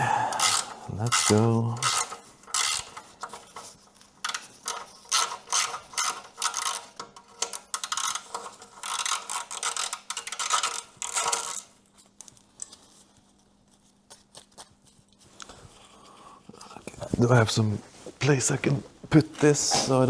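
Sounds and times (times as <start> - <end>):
socket ratchet clicking: 0.3 - 3.1.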